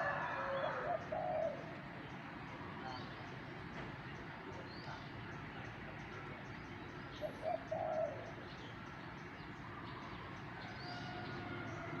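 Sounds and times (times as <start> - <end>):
dove cooing: 0.0 - 1.8, 7.2 - 8.4
steady background noise: 0.0 - 12.0.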